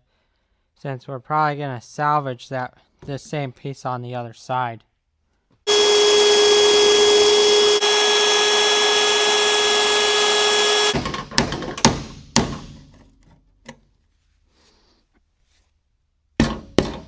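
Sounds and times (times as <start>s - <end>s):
power drill boring metal: 5.7s - 11.0s
sharp metallic knocks and clicks: 10.9s - 12.8s.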